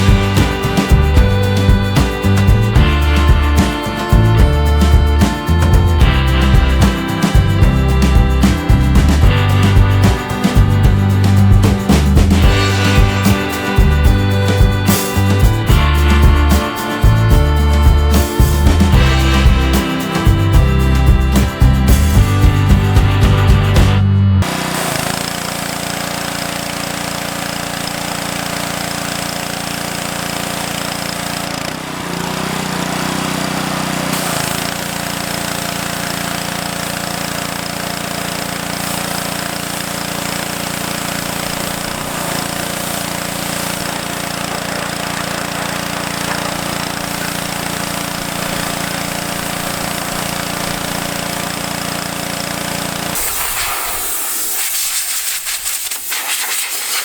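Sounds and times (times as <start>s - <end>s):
pressure washer humming: 0.0s - 57.0s
water spray hissing: 24.4s - 57.0s.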